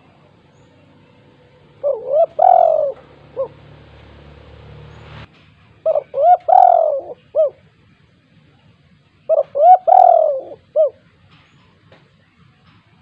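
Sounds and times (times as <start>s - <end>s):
dove cooing: 1.4s - 3.7s, 5.8s - 7.6s, 9.2s - 11.1s.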